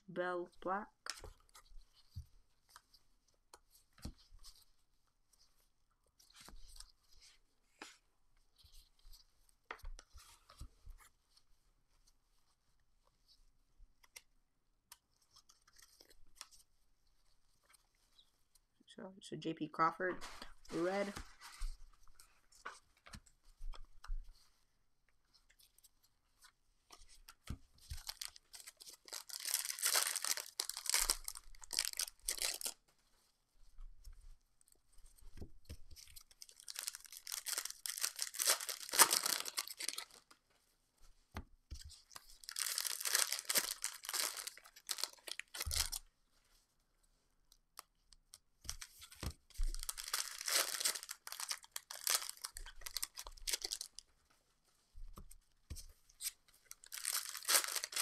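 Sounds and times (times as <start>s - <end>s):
foil packs tearing and crinkling: 28.0s - 32.8s, 36.5s - 40.2s, 42.4s - 45.9s, 49.8s - 53.9s, 56.8s - 58.0s.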